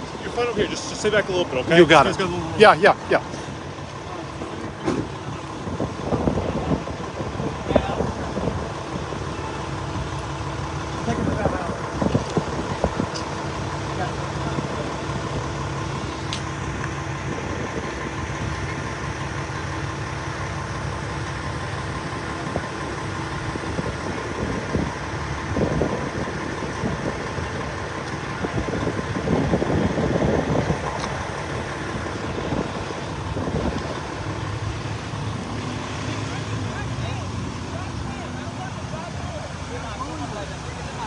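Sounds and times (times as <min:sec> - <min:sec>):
vehicle engines idling: 0:00.0 - 0:41.0.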